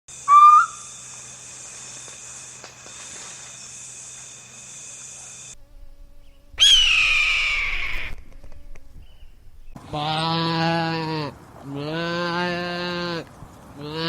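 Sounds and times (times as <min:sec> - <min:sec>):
insects droning: 0:00.1 - 0:10.3
loud animal call: 0:00.3 - 0:00.9.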